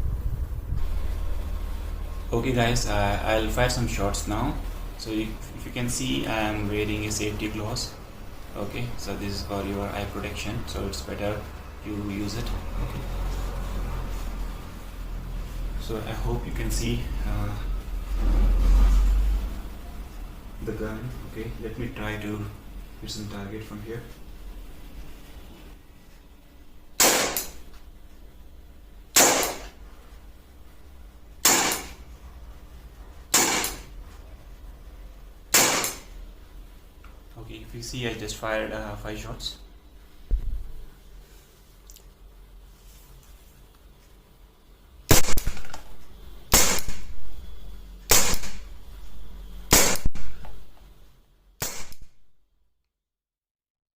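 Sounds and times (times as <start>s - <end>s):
air pistol shots: 27.0s - 27.6s, 29.1s - 29.8s, 31.4s - 32.0s, 33.3s - 33.9s, 35.5s - 36.1s, 45.1s - 45.8s, 46.5s - 47.1s, 48.1s - 48.7s, 49.7s - 50.4s, 51.6s - 52.1s.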